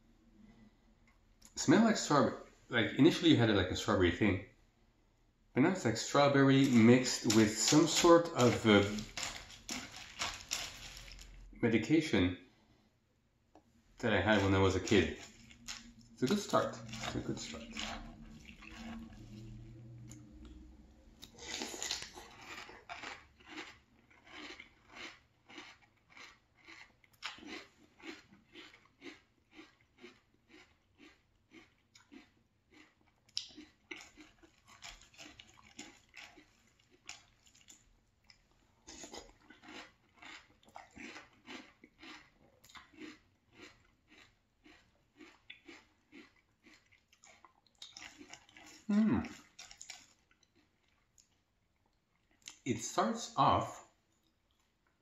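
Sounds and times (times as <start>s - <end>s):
person chewing crunchy cereal: 6.0s - 11.6s, 14.0s - 20.6s, 21.2s - 52.6s.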